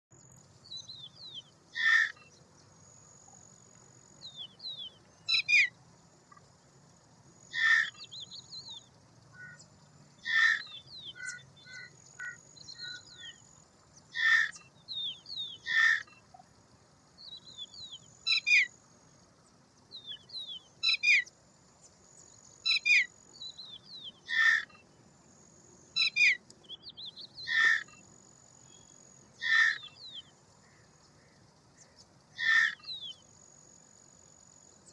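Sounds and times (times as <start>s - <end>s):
harsh bird call: 1.8s - 2.2s, 7.5s - 8.1s, 10.2s - 13.4s, 14.1s - 14.6s, 15.5s - 16.2s, 24.3s - 24.8s, 27.4s - 28.0s, 29.4s - 30.2s, 32.4s - 33.0s.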